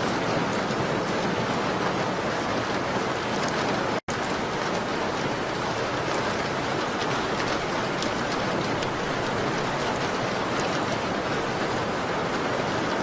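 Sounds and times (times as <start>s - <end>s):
rain on a window pane: 0.0s - 13.0s.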